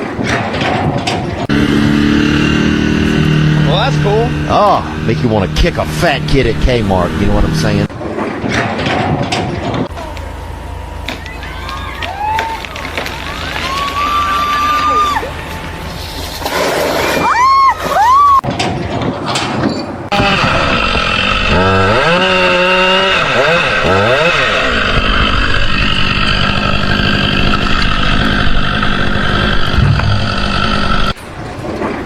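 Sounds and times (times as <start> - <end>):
engine revving: 1.4 - 7.9, 20.1 - 31.2.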